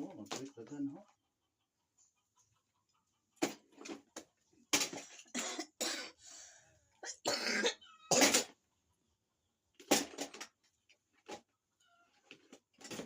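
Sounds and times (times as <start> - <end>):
person coughing harshly: 5.3 - 6.2, 7.0 - 8.6.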